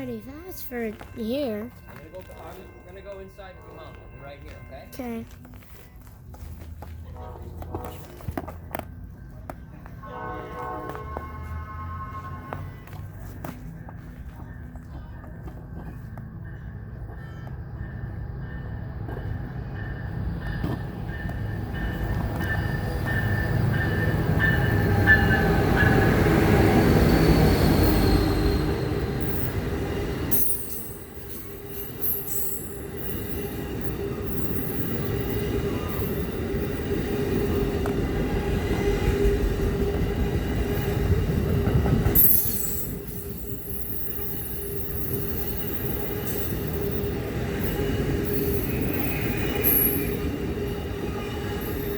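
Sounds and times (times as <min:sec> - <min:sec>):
train rumbling past: 0:00.0 - 0:51.9
wheels squealing on rails: 0:09.8 - 0:14.7, 0:15.8 - 0:51.9.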